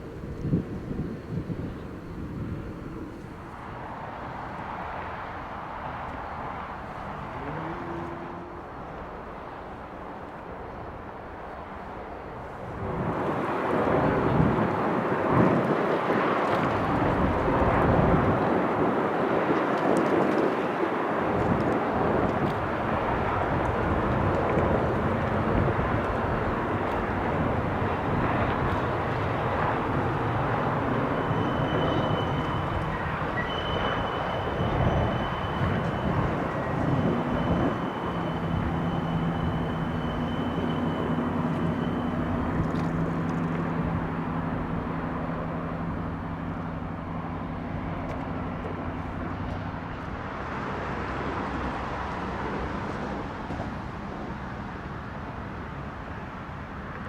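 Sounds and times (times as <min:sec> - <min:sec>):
train rumbling on rails: 0:00.0 - 0:10.6, 0:11.4 - 0:57.0
low hum: 0:23.3 - 0:47.4
faint high squeal: 0:25.8 - 0:43.3.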